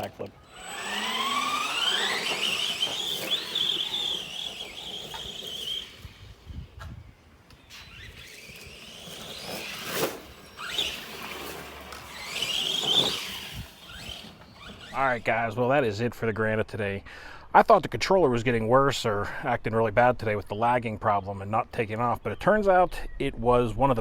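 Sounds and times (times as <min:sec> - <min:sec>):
rc truck motor whining: 0:00.0 - 0:15.5.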